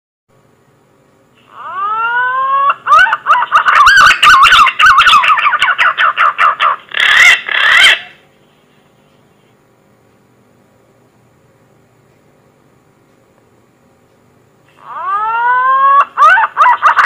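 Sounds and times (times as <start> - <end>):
pigeon whistling song: 1.6 - 8.2.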